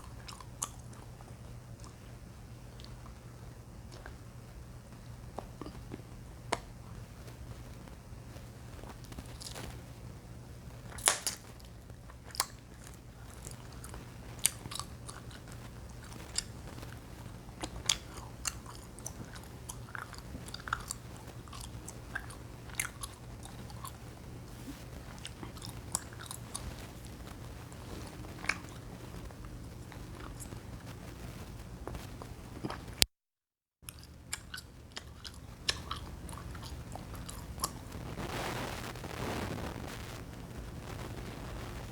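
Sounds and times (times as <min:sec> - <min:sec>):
chewing gum popping: 0:00.0 - 0:04.3, 0:04.9 - 0:07.0, 0:08.3 - 0:09.8, 0:10.8 - 0:33.1, 0:33.8 - 0:38.0
wet chewing: 0:00.0 - 0:04.3, 0:08.3 - 0:09.9, 0:10.8 - 0:33.1, 0:33.8 - 0:38.0
low hum: 0:34.1 - 0:41.9.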